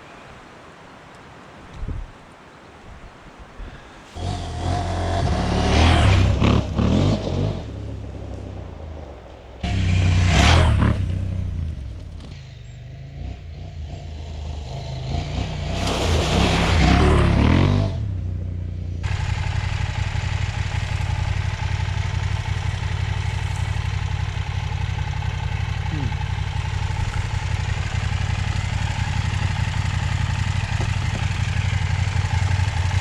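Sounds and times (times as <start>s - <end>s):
motorcycle engine accelerating: 4.2s - 33.0s
steady engine drone: 18.0s - 33.0s.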